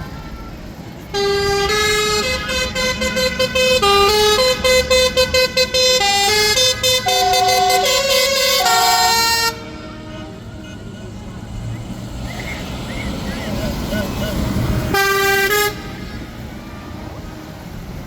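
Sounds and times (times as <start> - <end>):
low engine rumble: 0.0 - 18.0
musical vehicle horn playing tune: 1.1 - 11.1, 14.5 - 16.5.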